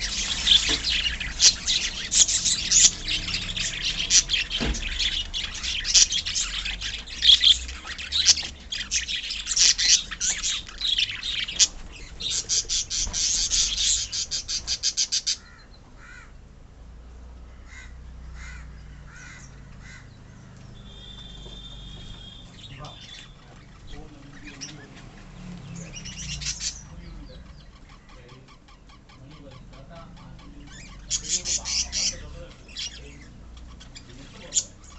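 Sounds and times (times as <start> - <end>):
scattered bird chirps: 0.0 - 15.8
parrots chattering and screeching: 0.0 - 16.4, 17.5 - 20.5, 21.6 - 34.9.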